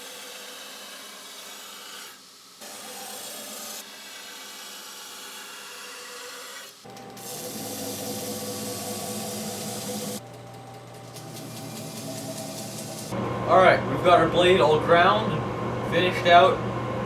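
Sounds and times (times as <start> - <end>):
belt grinder grinding metal: 6.9 - 13.2
motor hum: 6.9 - 14.2.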